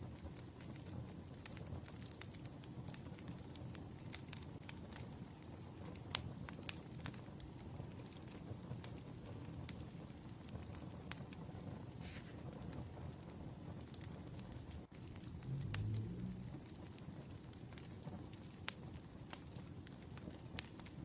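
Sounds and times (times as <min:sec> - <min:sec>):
wood fire crackling: 0:00.0 - 0:21.0
low rumble: 0:14.9 - 0:16.9.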